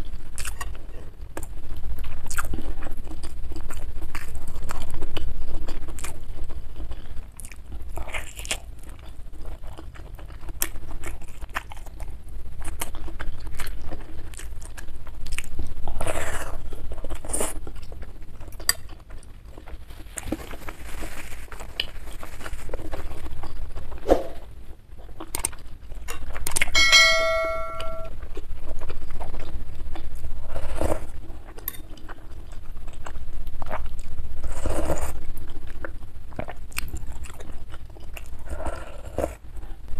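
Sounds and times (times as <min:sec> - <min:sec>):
close chewing with wet smacks: 0:00.4 - 0:16.0, 0:24.9 - 0:26.7, 0:31.4 - 0:38.4
short ringing ding: 0:26.8 - 0:28.1.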